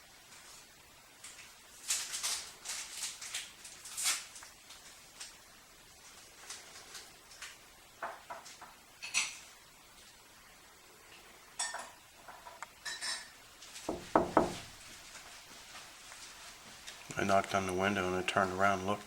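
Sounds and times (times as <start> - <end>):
dishes and cutlery clinking: 11.6 - 13.4
knocks on a window pane: 13.9 - 14.8.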